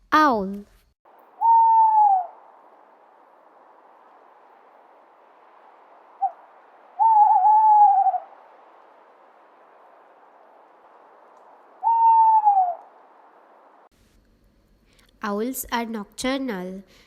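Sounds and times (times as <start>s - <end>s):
owl hooting: 1.2s - 4.7s, 5.9s - 13.7s
faint steady hiss: 2.2s - 17.0s.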